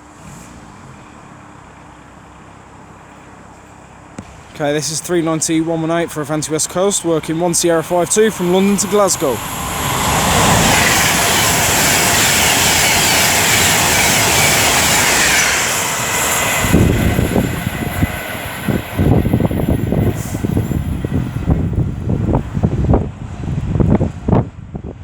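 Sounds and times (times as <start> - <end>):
electric train passing: 4.3 - 24.1
wind buffeting microphone: 5.0 - 25.0.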